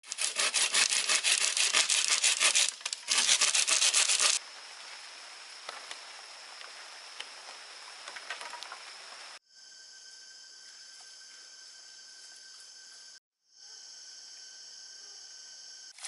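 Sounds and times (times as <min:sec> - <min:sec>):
hand saw cutting wood: 0:00.0 - 0:04.4.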